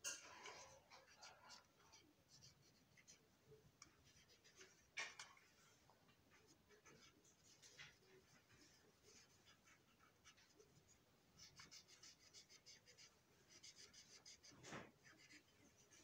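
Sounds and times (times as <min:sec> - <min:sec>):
marker scratching on plastic: 0:06.3 - 0:16.0.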